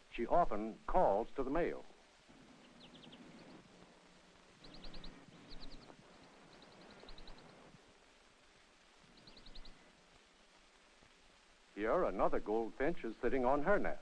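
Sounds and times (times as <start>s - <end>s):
faint steady hiss: 0.0s - 14.0s
bird chirping: 0.1s - 8.2s, 9.0s - 10.2s.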